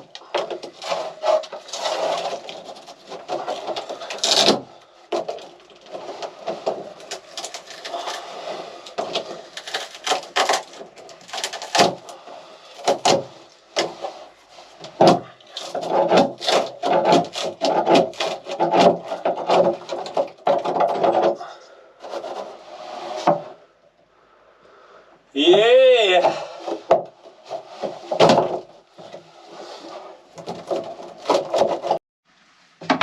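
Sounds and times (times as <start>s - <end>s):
sharp knocks and cracks: 0.0s - 12.2s, 12.8s - 14.1s, 14.8s - 21.4s, 26.7s - 29.2s, 30.4s - 32.0s, 32.8s - 33.0s
wood creaking and scraping: 0.0s - 32.0s.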